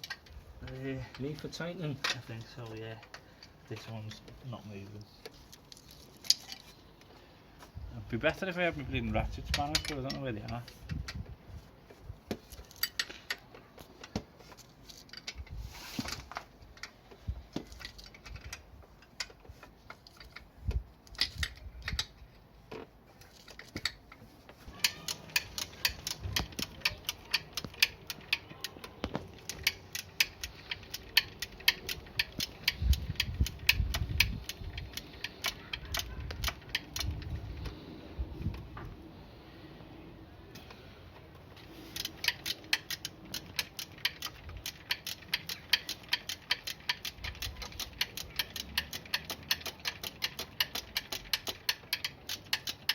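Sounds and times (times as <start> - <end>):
metal hand tools clicking: 24.7 - 37.7, 41.9 - 52.9.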